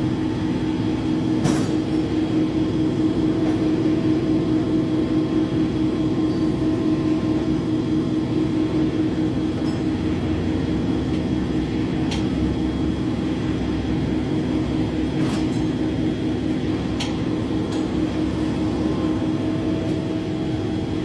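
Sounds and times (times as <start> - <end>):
mechanical drone: 16.3 - 21.0.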